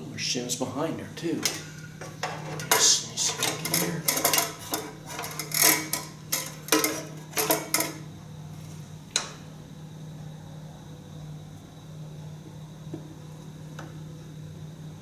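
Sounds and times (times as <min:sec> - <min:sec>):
steady low hum: 0:00.0 - 0:15.0
metal parts clinking and clattering: 0:02.2 - 0:08.0.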